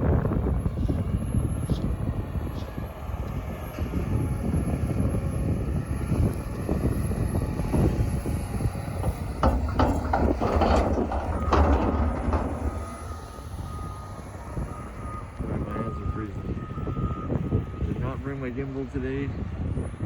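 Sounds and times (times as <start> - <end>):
wheel loader diesel engine: 1.7 - 17.8
clanks and rattles: 7.6 - 14.8
reversing beeper: 12.6 - 18.2.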